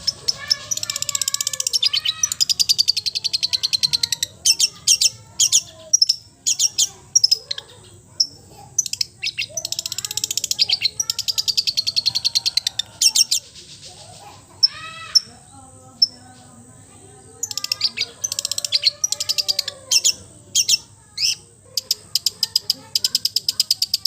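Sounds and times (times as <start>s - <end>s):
sharp bird chips: 0.0s - 16.4s, 17.4s - 24.0s
songbird trilling: 0.0s - 16.5s, 17.1s - 24.0s.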